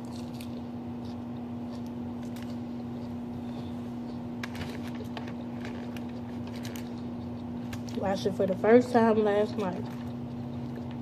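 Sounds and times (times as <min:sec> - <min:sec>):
person eating salad: 0:00.0 - 0:08.0, 0:09.4 - 0:11.0
steady background hum: 0:00.0 - 0:11.0.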